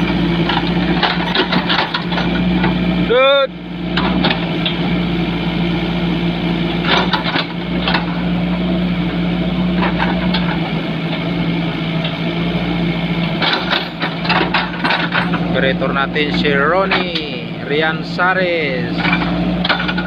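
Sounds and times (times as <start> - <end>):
knocks and clanks: 0.0 - 2.8, 3.9 - 4.8, 6.8 - 8.2, 9.8 - 11.2, 13.2 - 15.6, 16.7 - 17.4, 18.9 - 20.0
engine running steadily: 0.0 - 20.0.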